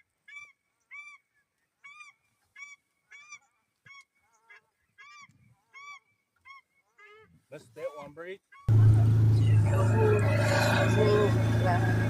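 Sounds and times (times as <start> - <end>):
honking bird calls: 8.4 - 12.0.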